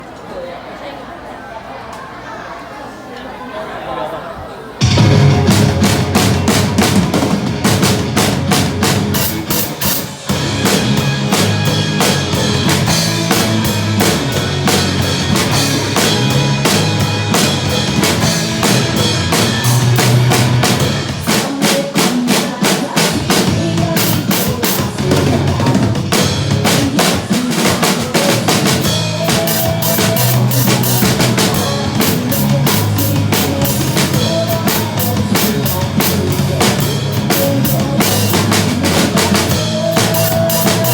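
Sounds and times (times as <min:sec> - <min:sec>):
backing track music: 0:04.8 - 0:40.9
drum kit playing a steady beat: 0:04.8 - 0:40.9.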